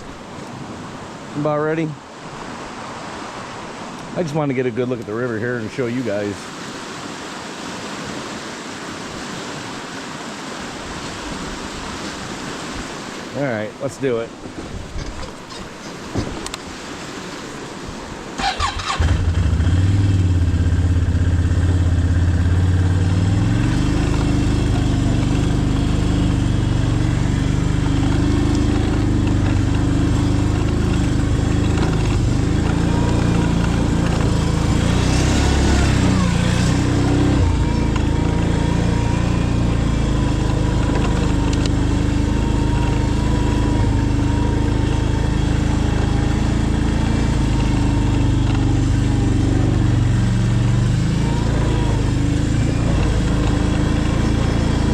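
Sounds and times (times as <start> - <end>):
small engine running: 18.4 - 54.9.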